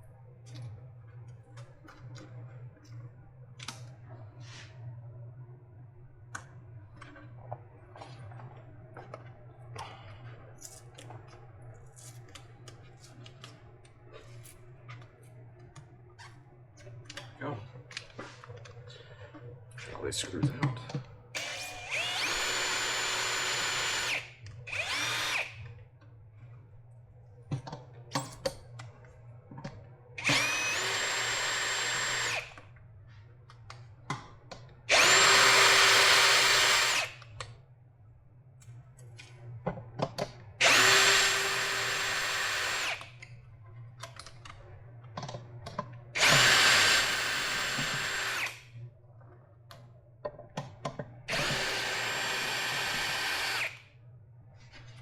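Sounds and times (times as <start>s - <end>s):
power drill motor whine: 21.4s - 25.7s, 30.2s - 32.7s, 34.9s - 37.2s, 40.6s - 43.2s, 46.2s - 48.7s, 51.3s - 53.8s.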